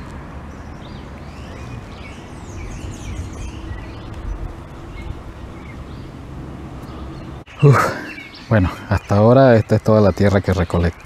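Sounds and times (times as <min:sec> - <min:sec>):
steady low rumble: 0:00.0 - 0:07.5
birds chirping: 0:00.0 - 0:11.0.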